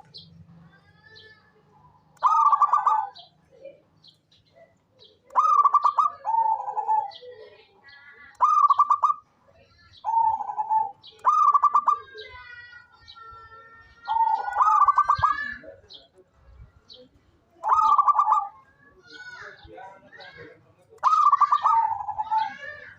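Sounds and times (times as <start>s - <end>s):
dove cooing: 2.2s - 3.3s, 5.3s - 7.5s, 8.4s - 9.2s, 10.1s - 12.3s, 14.1s - 15.6s, 17.6s - 18.6s, 21.0s - 22.9s.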